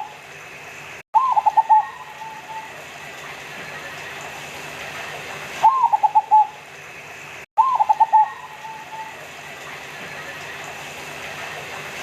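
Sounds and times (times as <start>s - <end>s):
dove cooing: 1.2s - 2.8s, 5.6s - 6.6s, 7.6s - 9.3s.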